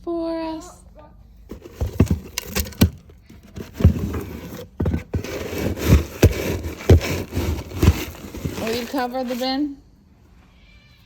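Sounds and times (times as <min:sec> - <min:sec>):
rough scraping and rustling: 0:01.5 - 0:09.7.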